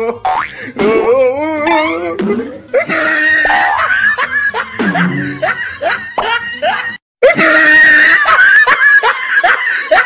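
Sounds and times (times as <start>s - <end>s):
people laughing: 2.3s - 10.0s.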